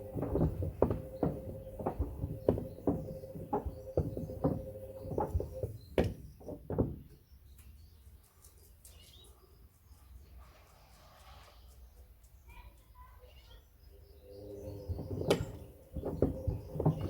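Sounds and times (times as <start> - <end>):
washing machine motor hum: 0.0 - 6.8, 14.3 - 17.0
wood knocking in washing machine drum: 0.0 - 7.2, 14.9 - 17.0.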